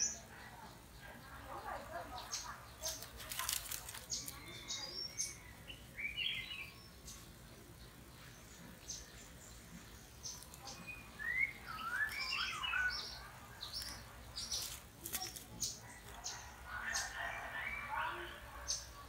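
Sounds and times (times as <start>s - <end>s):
songbird whistled notes: 10.8s - 13.2s.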